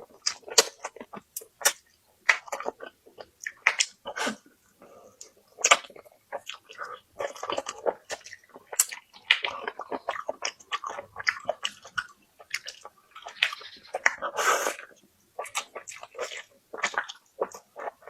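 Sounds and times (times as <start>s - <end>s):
person chewing and biting: 5.5s - 18.0s.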